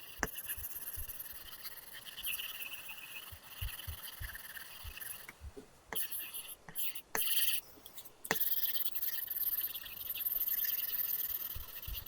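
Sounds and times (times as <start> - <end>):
stylus scratching on screen: 0.0 - 12.0
stylus tip tapping: 0.2 - 7.6, 8.2 - 8.9, 11.4 - 12.0.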